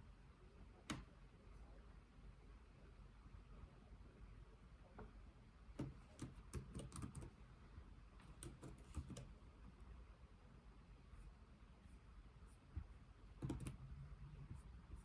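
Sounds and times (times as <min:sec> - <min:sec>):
soft typing on keyboard: 0:05.8 - 0:07.5, 0:08.2 - 0:09.4, 0:12.8 - 0:15.0.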